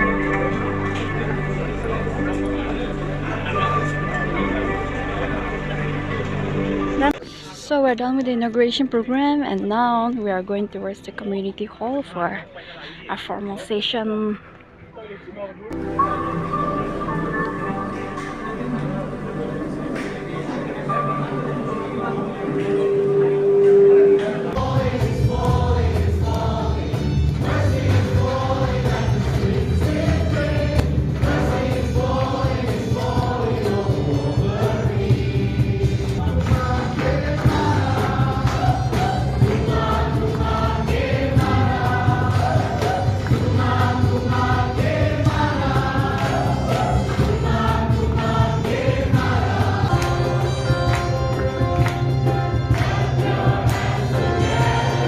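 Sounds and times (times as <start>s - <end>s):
choir singing gospel song: 15.7s - 55.0s
instrumental accompaniment: 15.7s - 55.0s.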